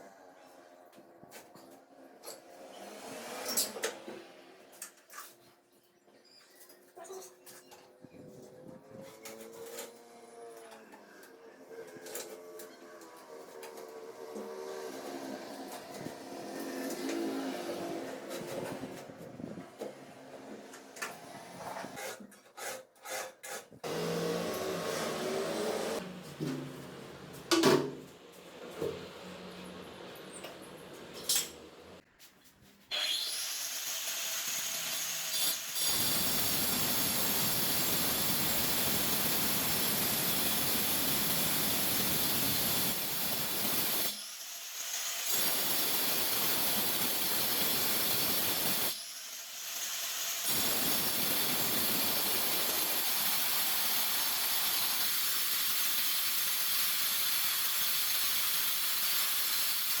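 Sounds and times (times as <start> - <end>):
power tool grinding: 8.5 - 22.3, 23.0 - 27.4.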